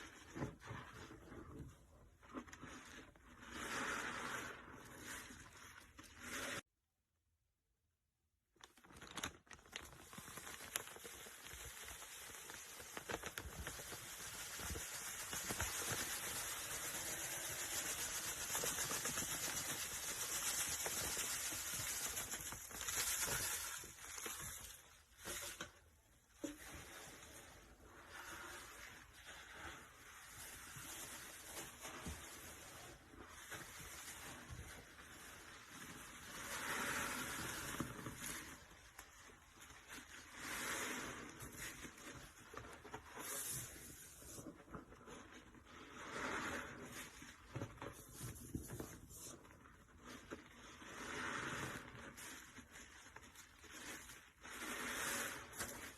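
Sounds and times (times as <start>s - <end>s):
sponge squelching suds: 2.2s - 6.6s, 26.3s - 47.5s, 49.1s - 55.9s
crackle of bubbles: 8.5s - 25.7s.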